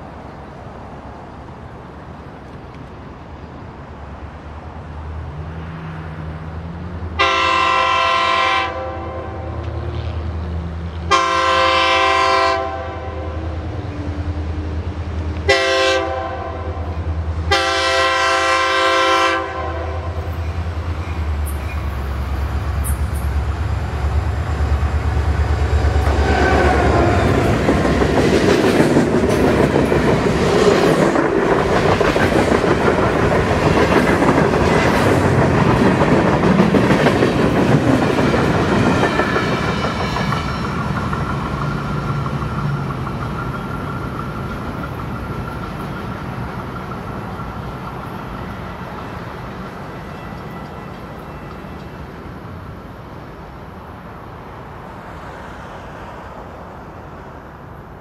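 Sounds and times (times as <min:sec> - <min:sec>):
train wheels clicking over rail joints: 0:20.2 - 0:52.4.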